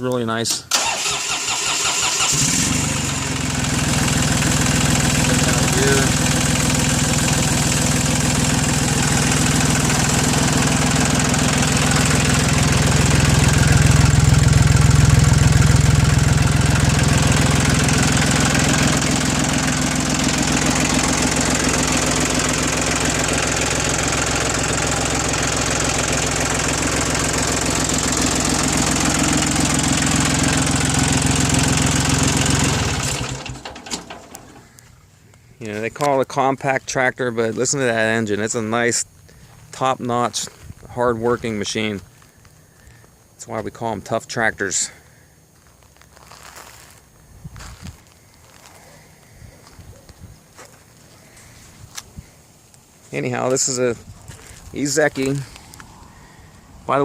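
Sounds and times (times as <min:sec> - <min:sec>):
tractor diesel engine idling: 0:00.7 - 0:35.0.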